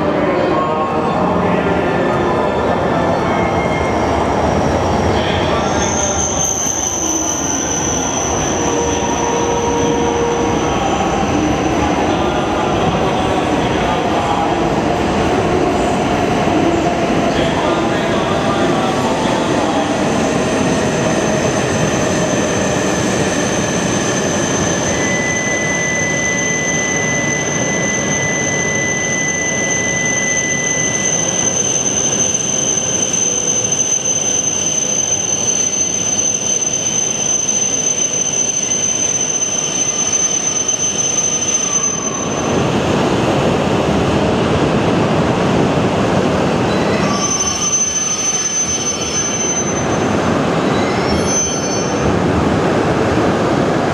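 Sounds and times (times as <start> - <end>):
train running noise: 0.0 - 53.9
high-pitched wheel squeal: 3.2 - 12.2, 20.8 - 42.6, 46.7 - 52.1.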